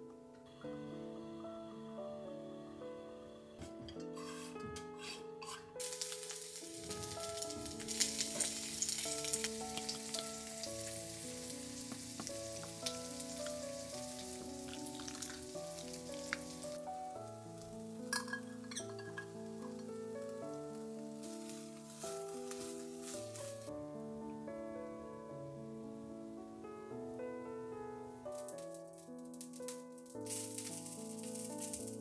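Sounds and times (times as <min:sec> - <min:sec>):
soft background music: 0:00.0 - 0:32.0
food sizzling in a frying pan: 0:05.8 - 0:23.7, 0:28.2 - 0:32.0.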